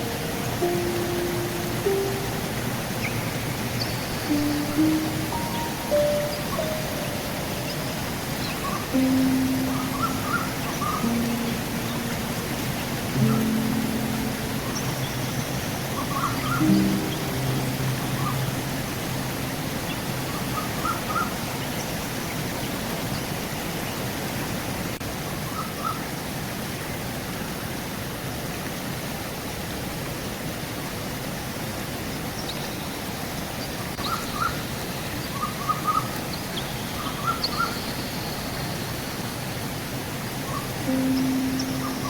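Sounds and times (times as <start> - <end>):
thin high bird call: 0.0 - 18.9, 40.5 - 42.0
small birds chirping: 0.0 - 23.4, 33.6 - 39.7, 40.3 - 42.0
river flowing: 0.0 - 42.0.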